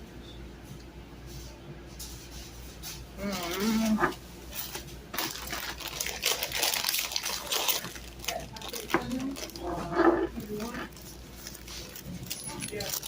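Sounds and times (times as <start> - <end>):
food packaging crinkling: 4.5 - 13.0.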